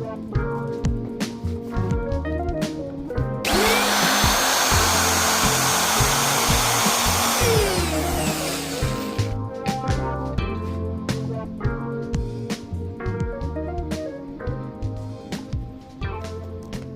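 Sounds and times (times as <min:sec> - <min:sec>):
background music with bass and drums: 0:00.0 - 0:16.9
power tool motor spinning: 0:03.5 - 0:09.3.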